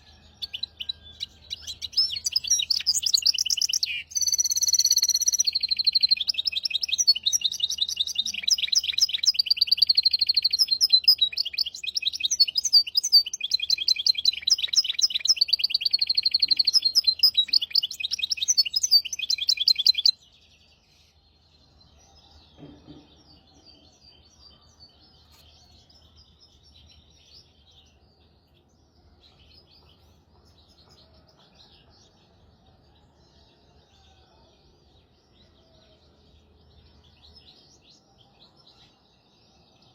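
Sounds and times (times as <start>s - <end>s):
songbird trilling: 0.0s - 20.2s
faint bird chirps: 0.0s - 39.9s.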